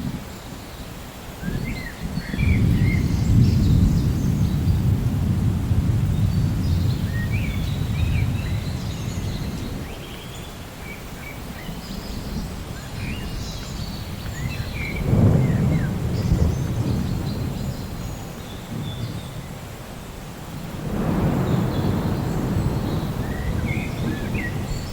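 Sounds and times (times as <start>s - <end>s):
rain hiss: 0.0s - 24.9s
thunder rumbling: 1.4s - 9.9s, 14.0s - 19.7s, 20.4s - 24.9s
birds chirping: 6.0s - 19.6s, 20.5s - 24.9s.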